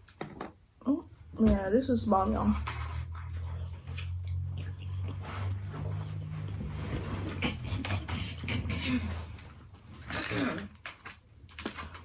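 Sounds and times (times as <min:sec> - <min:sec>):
steady low hum: 0:01.0 - 0:10.5
person chewing and smacking: 0:02.6 - 0:06.7.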